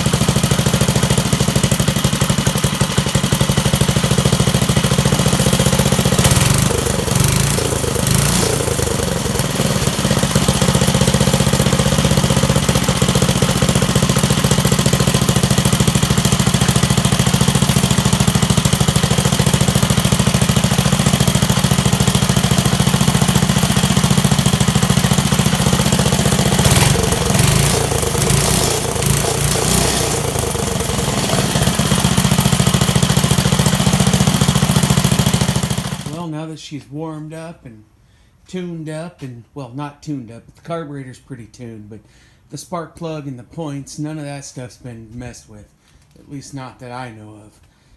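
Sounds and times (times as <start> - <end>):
small engine idling: 0.0 - 36.2.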